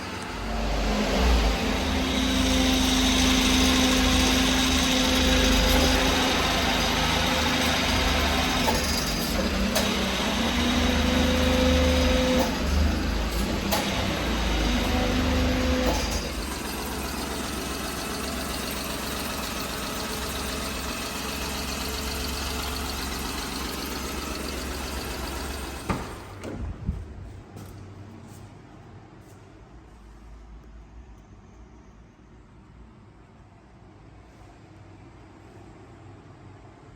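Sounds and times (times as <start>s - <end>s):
small truck engine running: 0.0s - 26.5s.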